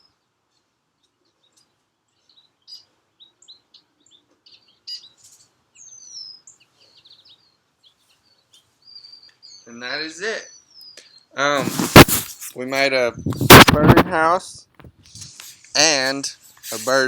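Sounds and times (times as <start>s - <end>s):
songbirds chirping: 0.0s - 11.9s.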